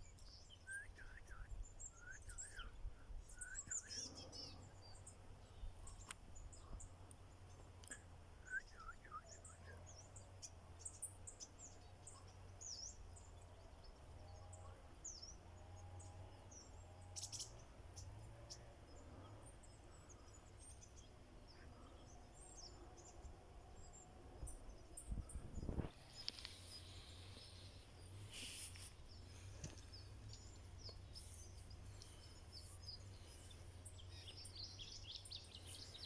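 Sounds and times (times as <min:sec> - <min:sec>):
songbirds chirping: 0:00.0 - 0:36.0
low steady rumble: 0:15.6 - 0:36.0.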